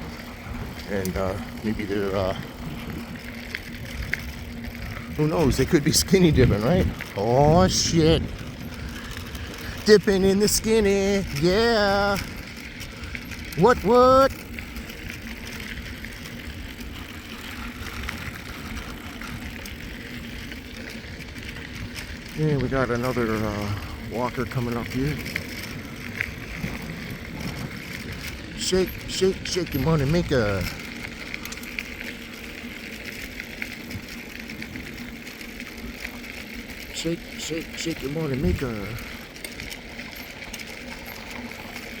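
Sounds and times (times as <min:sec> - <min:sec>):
wind rumble on microphone: 0:00.0 - 0:32.0
bike tyres rolling on gravel: 0:00.0 - 0:42.0
small rattles and ticks: 0:00.0 - 0:42.0.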